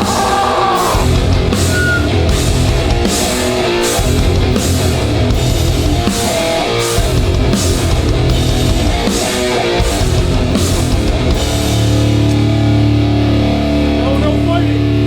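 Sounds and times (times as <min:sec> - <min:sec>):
drums with crashing cymbals: 0:00.0 - 0:12.3
bass guitar: 0:00.0 - 0:15.0
distorted guitars: 0:00.0 - 0:15.0
guitar chord ringing: 0:08.4 - 0:15.0.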